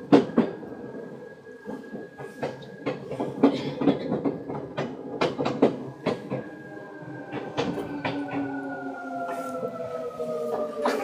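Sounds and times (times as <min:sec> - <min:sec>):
train rumble: 0:00.0 - 0:11.0
train wheels clacking over joints: 0:01.6 - 0:06.6, 0:07.2 - 0:09.8.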